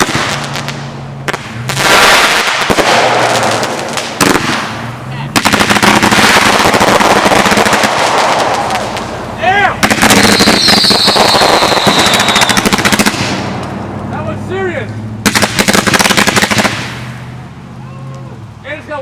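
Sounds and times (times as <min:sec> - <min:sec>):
fireworks cracking: 0:00.0 - 0:18.6
falling whistle: 0:10.2 - 0:13.0.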